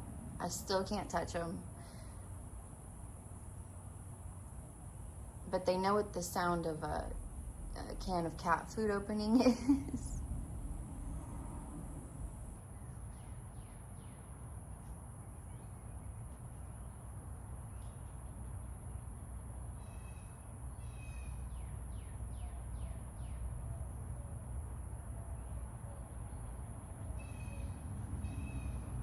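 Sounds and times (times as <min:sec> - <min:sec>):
low rumble: 0:06.4 - 0:13.8.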